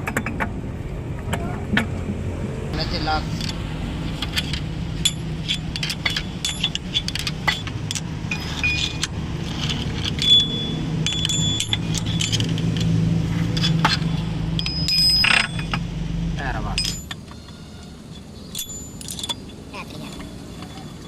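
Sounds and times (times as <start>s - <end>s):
metal tools clinking: 3.3s - 15.9s, 16.6s - 19.6s.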